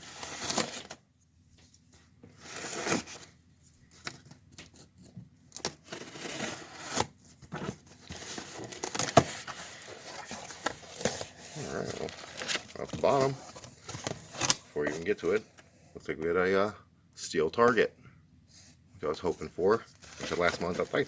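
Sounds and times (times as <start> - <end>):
packaging tearing and crinkling: 8.0 - 14.8.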